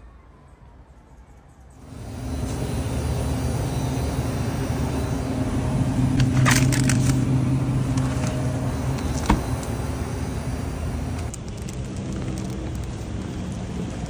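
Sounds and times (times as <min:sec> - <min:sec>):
vehicle engine humming: 0:01.8 - 0:14.0
crackling clicks: 0:11.1 - 0:14.0.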